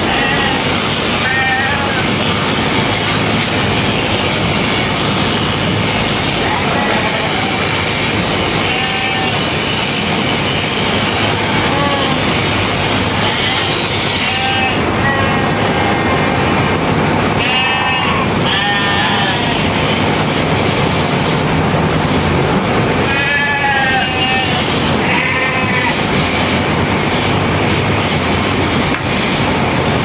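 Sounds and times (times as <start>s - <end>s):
sheep bleating: 0.0s - 2.1s, 6.4s - 7.7s, 8.5s - 9.5s, 11.3s - 12.3s, 13.2s - 16.6s, 17.4s - 19.7s, 23.0s - 26.1s
loud mechanical noise: 0.0s - 30.0s.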